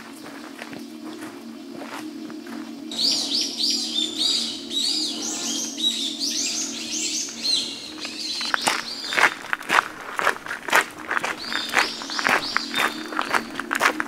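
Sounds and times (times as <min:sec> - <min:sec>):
footsteps on gravel: 0:00.0 - 0:03.2, 0:07.2 - 0:14.0
songbird singing: 0:00.0 - 0:14.0.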